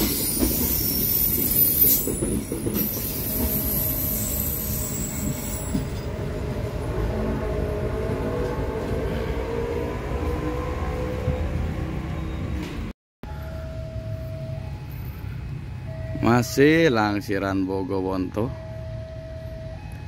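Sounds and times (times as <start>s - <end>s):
high-pitched wheel squeal: 0.0s - 6.1s
train cars rolling slowly: 0.0s - 10.6s.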